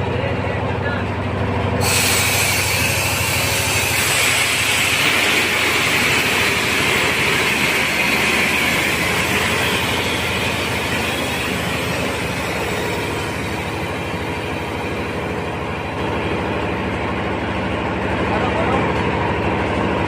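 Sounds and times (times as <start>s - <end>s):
vehicle engine running: 0.0s - 20.0s
loud hiss: 1.8s - 15.8s.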